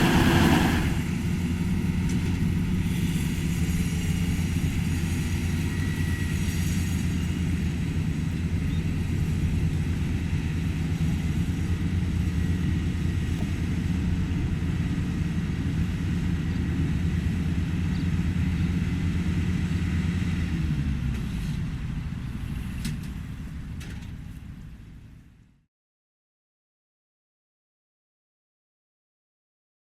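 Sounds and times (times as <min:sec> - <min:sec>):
diesel engine humming: 0:00.0 - 0:25.4.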